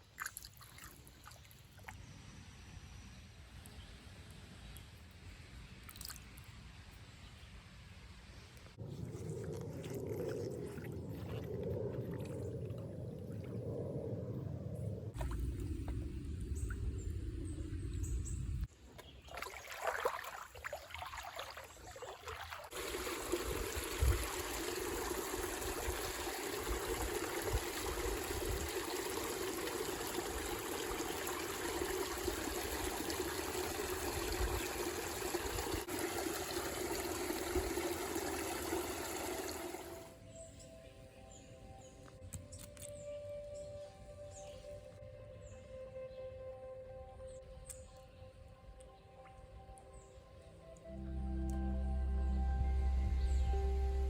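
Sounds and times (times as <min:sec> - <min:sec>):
low rumble: 0:08.8 - 0:18.7, 0:50.9 - 0:54.0
stream water rushing: 0:19.4 - 0:40.1.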